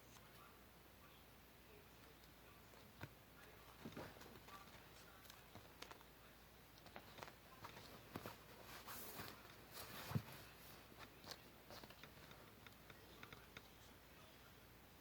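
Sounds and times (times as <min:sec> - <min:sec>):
paper rustling: 0:06.8 - 0:12.6.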